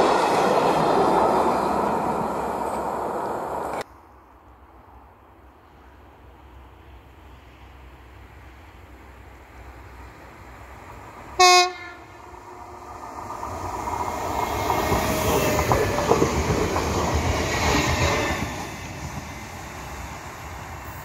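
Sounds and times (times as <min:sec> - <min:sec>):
train horn blast: 0:11.4 - 0:12.8
train wheels clicking over rail joints: 0:13.2 - 0:21.0.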